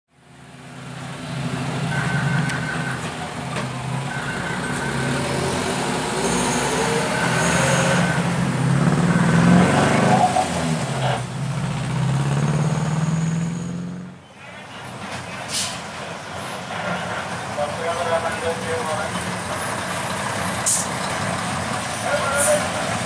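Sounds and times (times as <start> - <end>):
traffic engines humming: 0.1 - 23.0
high tone: 3.9 - 8.5.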